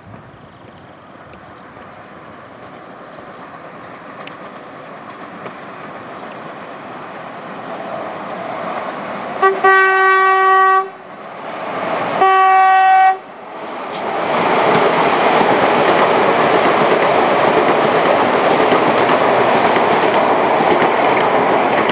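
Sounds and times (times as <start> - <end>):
train wheels rushing on rails: 0.0 - 21.9
train horn blasts: 9.4 - 11.0, 12.2 - 13.3.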